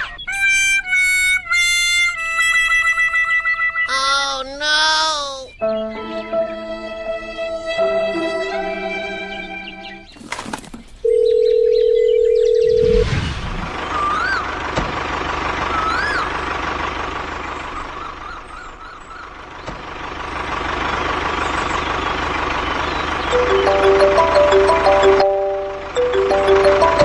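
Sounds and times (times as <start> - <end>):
outdoor hum: 0.0 - 27.0
bird chirps: 3.9 - 6.3, 9.5 - 11.1, 13.8 - 14.6, 15.7 - 16.4, 17.4 - 19.8, 21.4 - 24.1.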